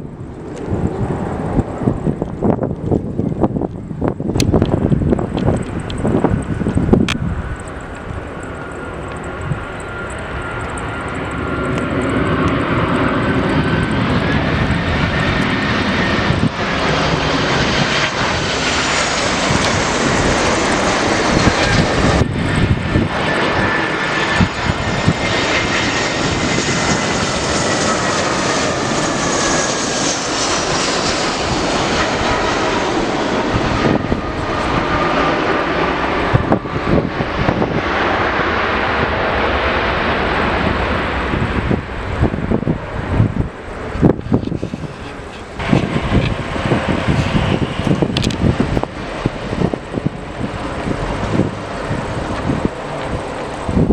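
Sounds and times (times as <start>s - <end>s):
jet aircraft engines roaring: 0.0s - 53.9s.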